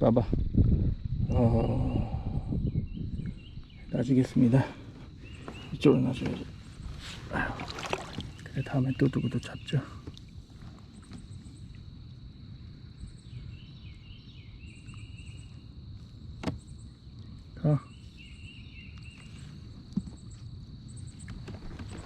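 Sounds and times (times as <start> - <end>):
high insect drone: 0.9 - 22.0
birds singing: 1.2 - 22.0.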